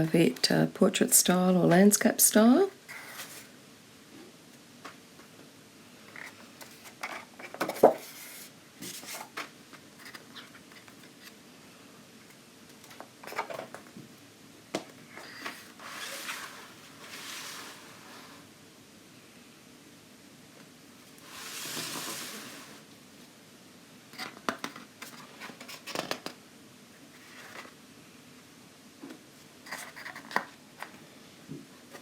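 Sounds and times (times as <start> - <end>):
paper sliding swishes: 15.4 - 18.4.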